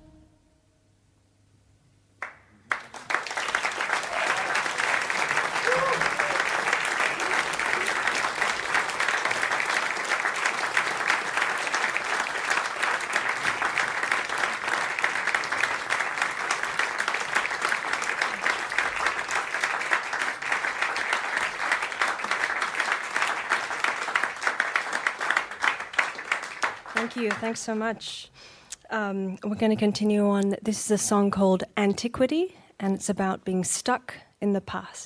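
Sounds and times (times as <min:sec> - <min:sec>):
audience applauding: 0:02.2 - 0:27.8
audience cheering: 0:02.7 - 0:27.4.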